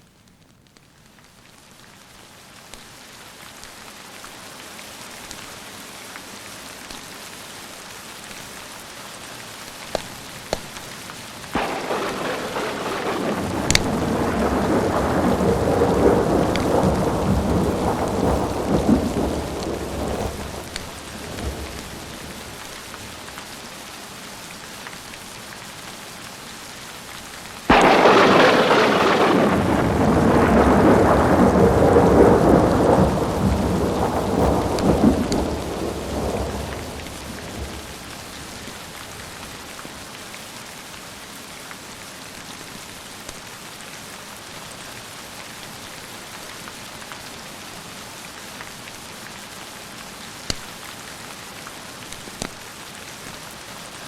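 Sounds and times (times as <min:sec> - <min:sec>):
steady rain: 0:00.0 - 0:54.0
sharp thunderclap: 0:11.6 - 0:23.3, 0:27.7 - 0:39.6
thunder rumble: 0:11.6 - 0:23.5, 0:27.7 - 0:39.7.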